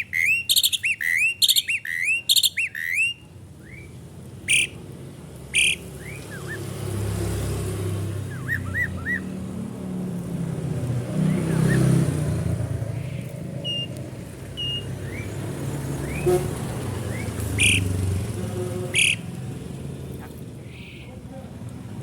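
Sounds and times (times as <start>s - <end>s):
starling whistling calls: 0.0s - 4.8s, 5.5s - 6.8s, 8.2s - 9.4s, 12.9s - 16.4s, 17.0s - 18.0s, 18.9s - 19.4s
harsh bird calls: 0.0s - 9.6s, 11.1s - 19.6s, 20.2s - 21.3s
road traffic rumble: 0.0s - 22.0s.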